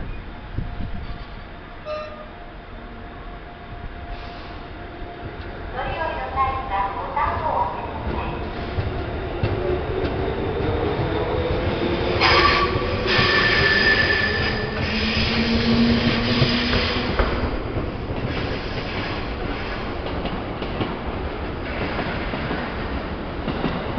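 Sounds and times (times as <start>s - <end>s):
train rumbling over rails: 0.0s - 23.9s
high wheel squeal: 12.2s - 15.3s.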